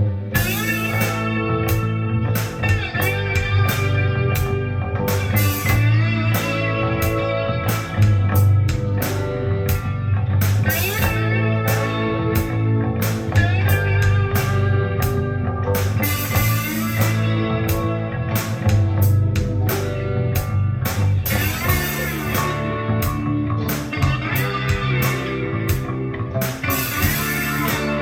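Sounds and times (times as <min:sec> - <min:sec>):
guitar music with drums: 0:00.0 - 0:28.0.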